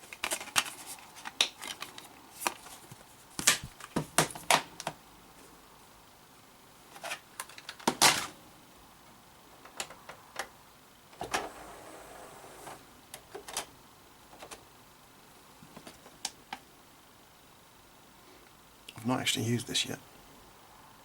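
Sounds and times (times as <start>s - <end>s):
plastic objects clicking and knocking: 0.0s - 2.8s, 7.0s - 8.3s.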